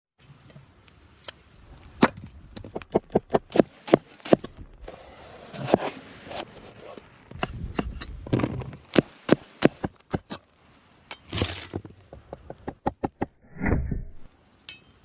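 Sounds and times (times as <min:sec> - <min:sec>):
blade chopping wood: 0:02.0 - 0:04.7, 0:07.3 - 0:10.4.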